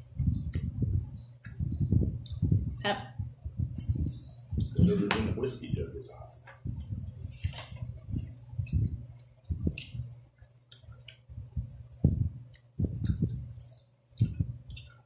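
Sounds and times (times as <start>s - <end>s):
dull low knocks: 11.4s - 13.5s.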